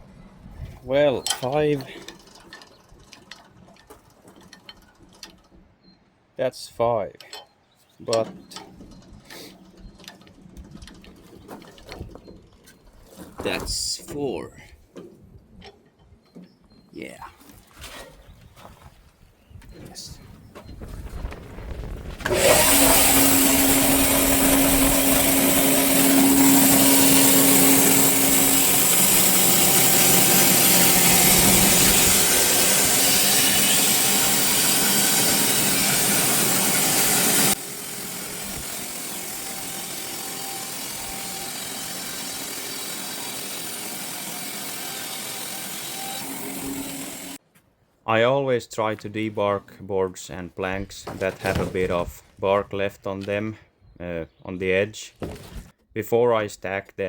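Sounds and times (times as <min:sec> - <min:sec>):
band sawmill sawing log: 0:22.2 - 0:47.4.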